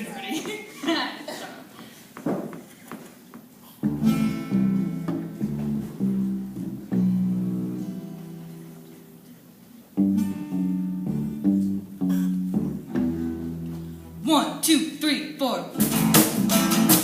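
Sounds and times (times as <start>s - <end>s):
acoustic guitar strumming: 3.8s - 9.2s, 10.0s - 14.7s, 15.7s - 17.0s.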